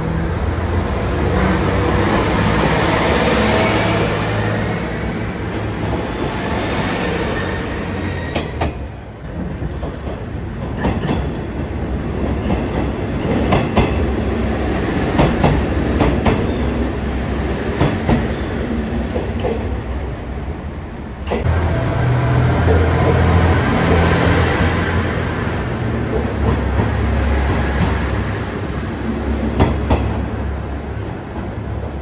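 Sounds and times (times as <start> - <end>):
diesel railcar running: 0.0 - 32.0
train wheels clacking over rail joints: 12.4 - 16.9, 17.7 - 19.7, 29.4 - 30.3.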